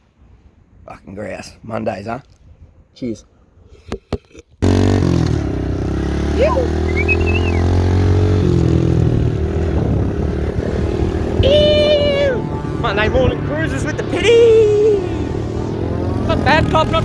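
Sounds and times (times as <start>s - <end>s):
motorcycle engine running: 4.6s - 17.0s.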